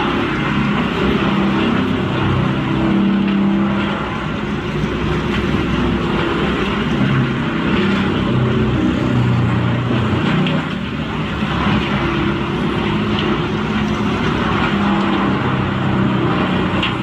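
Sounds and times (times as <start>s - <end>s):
rumble of wood being chipped: 0.0s - 17.0s
wood chipper engine: 0.0s - 17.0s.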